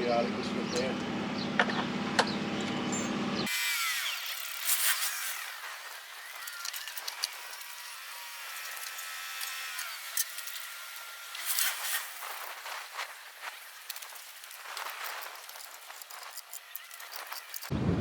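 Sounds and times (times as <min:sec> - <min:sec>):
metal parts clicking and tapping: 0:06.3 - 0:07.8, 0:08.6 - 0:10.7, 0:13.8 - 0:17.7.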